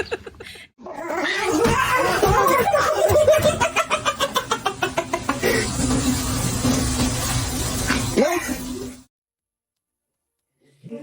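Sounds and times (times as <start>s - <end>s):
person laughing: 0.0s - 0.7s, 1.9s - 5.8s.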